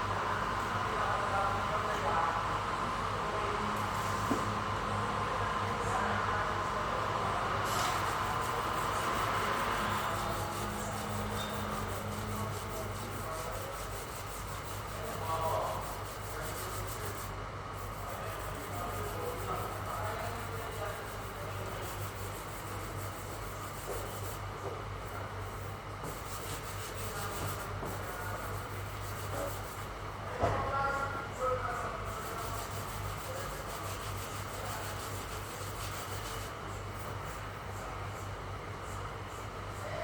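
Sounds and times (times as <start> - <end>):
sandpaper rubbing: 7.7 - 24.4, 25.4 - 29.9, 31.8 - 37.4.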